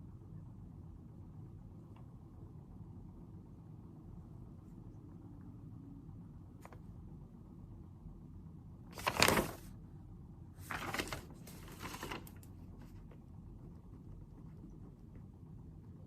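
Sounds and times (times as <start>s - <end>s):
low room hum: 0.0s - 16.0s
paper rustling: 9.0s - 9.7s, 10.6s - 13.0s.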